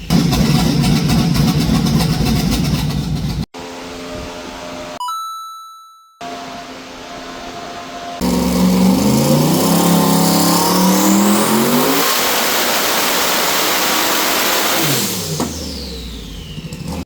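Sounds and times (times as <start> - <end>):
car engine revving: 0.0 - 3.4, 8.2 - 17.0.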